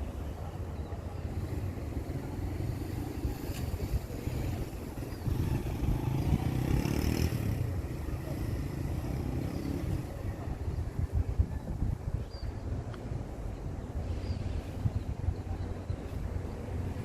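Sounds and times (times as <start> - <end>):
steady low traffic rumble: 0.0 - 17.0
motor vehicle passing: 1.4 - 10.6.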